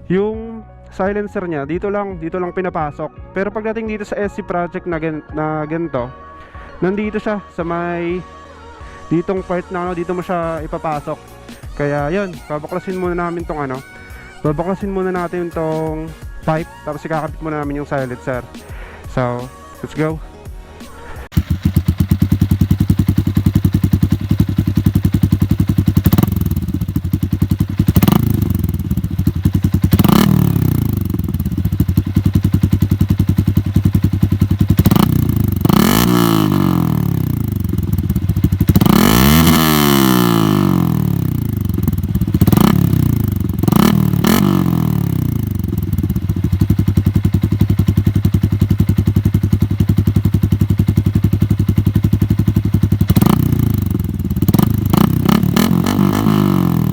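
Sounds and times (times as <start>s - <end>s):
engine throttle blips: 21.3s - 56.9s
motorcycle engine idling: 21.3s - 56.9s.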